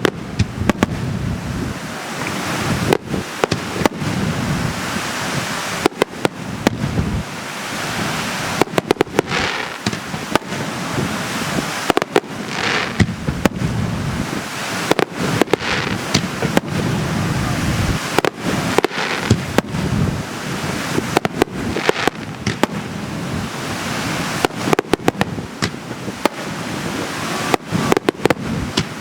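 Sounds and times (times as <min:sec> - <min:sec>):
crackling hissing firework bursts: 0:00.0 - 0:29.0
fireworks bangs: 0:00.0 - 0:29.0
background rumble: 0:08.5 - 0:14.4.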